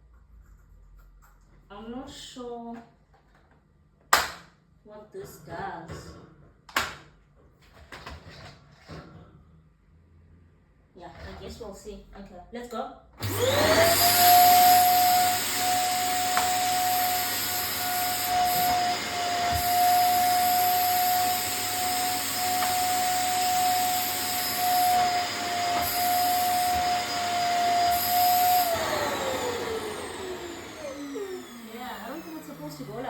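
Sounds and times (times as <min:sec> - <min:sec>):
vacuum cleaner motor whine: 0:13.2 - 0:33.0.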